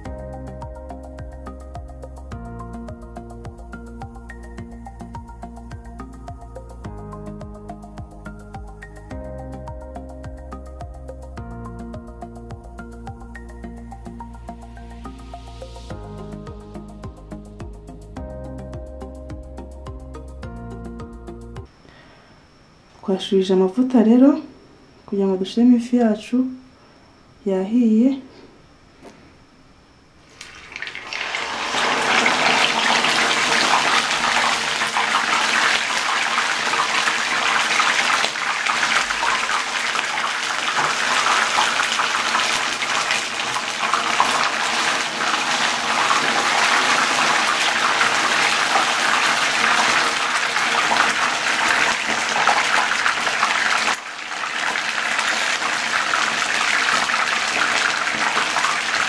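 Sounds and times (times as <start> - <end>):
fish sizzling in hot oil: 30.3 - 59.0.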